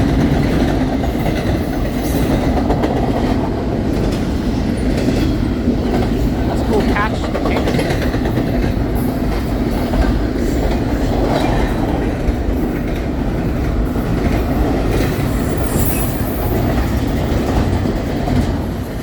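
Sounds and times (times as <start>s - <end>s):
freight train rumbling past: 0.0s - 19.0s
high wheel squeal: 14.9s - 17.3s.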